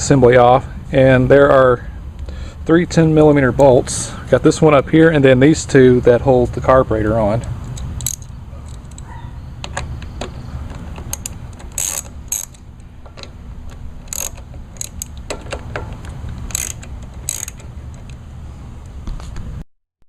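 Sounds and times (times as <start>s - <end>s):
socket ratchet clicking: 7.4s - 18.2s
metallic clanks: 7.6s - 18.2s.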